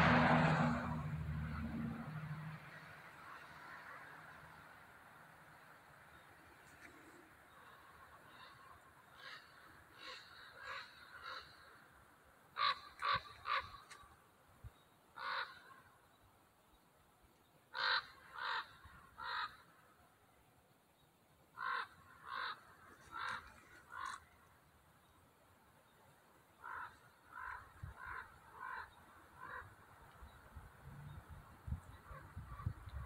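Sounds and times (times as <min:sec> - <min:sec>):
bird calling: 0:06.1 - 0:11.9, 0:17.7 - 0:19.8, 0:21.5 - 0:24.5.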